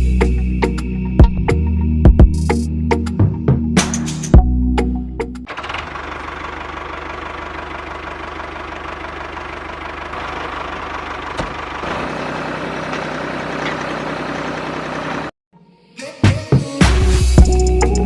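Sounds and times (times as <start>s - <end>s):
model diesel engine running: 5.5s - 15.4s.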